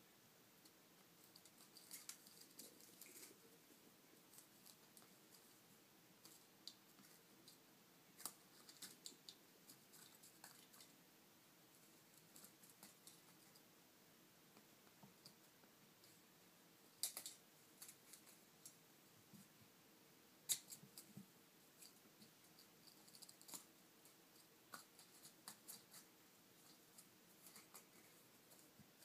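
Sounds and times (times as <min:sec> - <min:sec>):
faint small clicks: 0:17.0 - 0:18.8.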